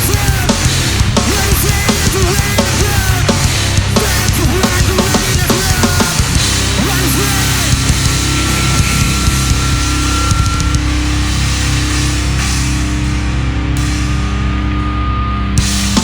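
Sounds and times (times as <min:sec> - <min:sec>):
heavy band playing live: 0:00.0 - 0:16.0
high ringing tone: 0:06.8 - 0:16.0.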